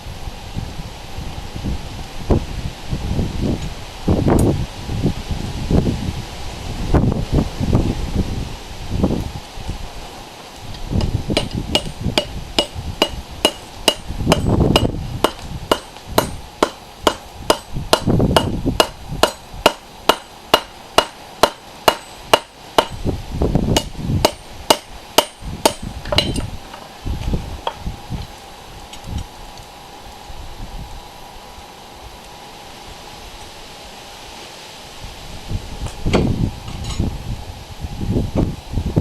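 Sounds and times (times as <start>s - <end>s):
hammer striking metal on anvil: 11.0s - 23.0s, 23.8s - 26.5s.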